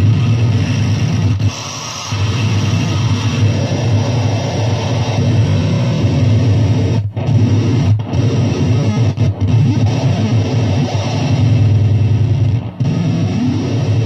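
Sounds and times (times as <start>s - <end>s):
harsh electronic noise music: 0.0s - 14.0s
heavy low hum: 0.0s - 14.0s.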